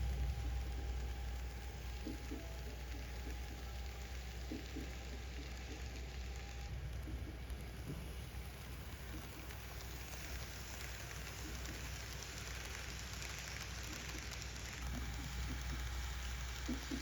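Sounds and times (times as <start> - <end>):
low hum: 0.0 - 10.4
model train rushing noise: 0.0 - 17.0.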